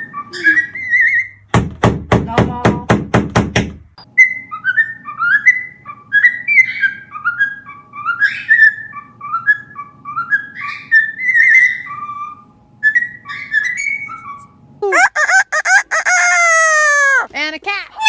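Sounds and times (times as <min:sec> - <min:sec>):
parrot whistling: 0:00.0 - 0:01.4, 0:04.0 - 0:14.5.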